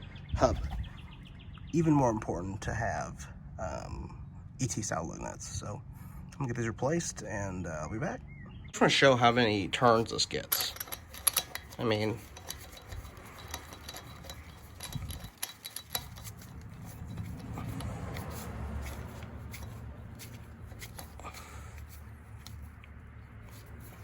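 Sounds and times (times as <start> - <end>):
low steady rumble: 0.0 - 24.0
lug nut threads rasping: 9.2 - 24.0.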